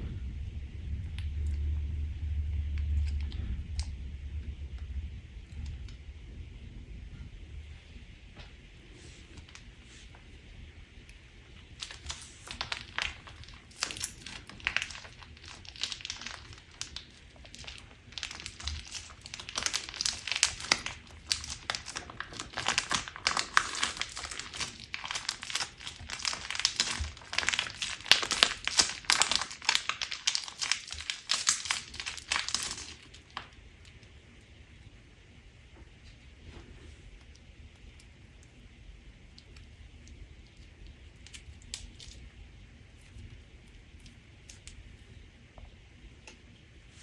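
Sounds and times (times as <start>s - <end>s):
crunchy slime crackling: 11.6s - 34.0s.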